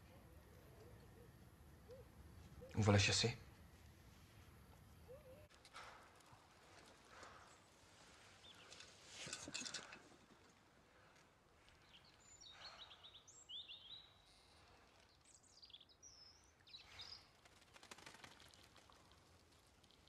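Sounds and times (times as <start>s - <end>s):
birds chirping and whistling: 11.8s - 14.5s.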